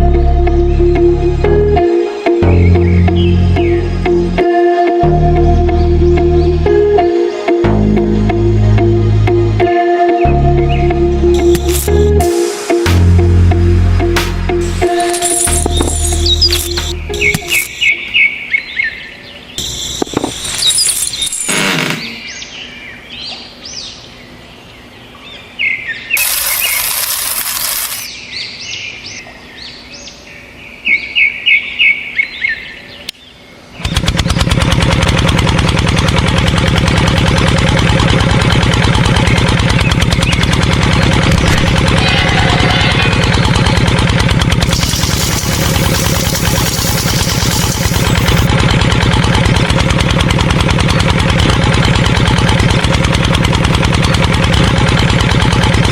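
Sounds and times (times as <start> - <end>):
small motor running: 11.3 - 12.2, 14.6 - 17.9, 19.6 - 22.2, 26.2 - 28.1, 33.8 - 55.9
birds chirping: 14.8 - 27.2.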